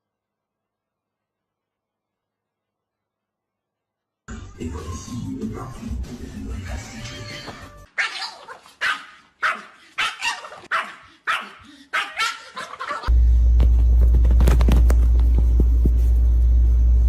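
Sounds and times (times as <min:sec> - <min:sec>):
dog barking: 0:08.0 - 0:13.1.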